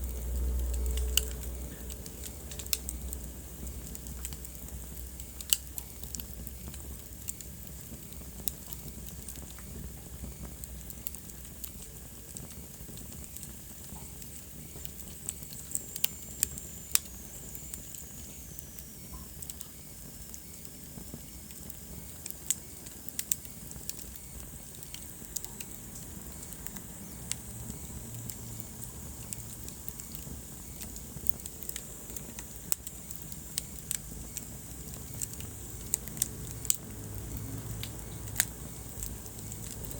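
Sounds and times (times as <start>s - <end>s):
low rumble and hiss of fire: 0.0s - 39.9s
wood fire crackling and popping: 0.0s - 39.9s.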